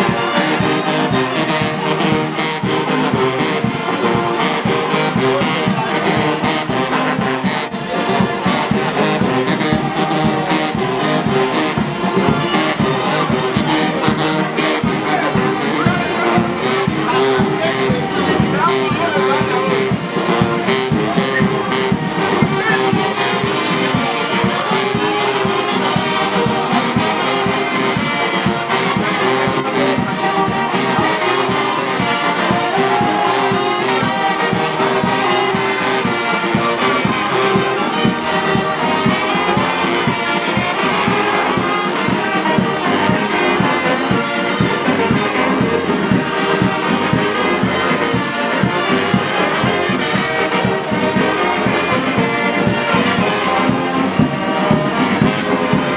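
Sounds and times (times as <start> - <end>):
brass band music: 0.0 - 55.9.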